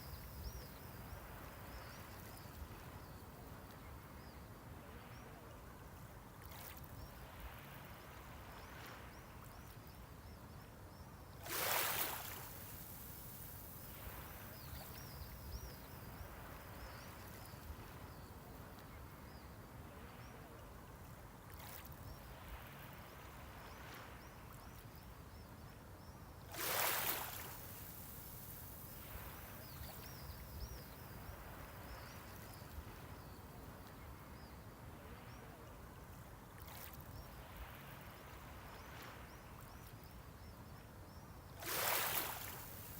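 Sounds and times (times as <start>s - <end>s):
small waves breaking: 11.4s - 18.1s, 26.5s - 33.8s, 41.6s - 42.9s
sea hiss: 41.6s - 42.9s.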